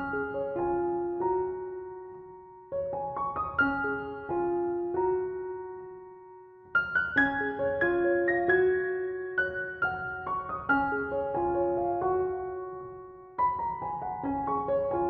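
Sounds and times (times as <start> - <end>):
soft piano music: 0.0 - 15.0.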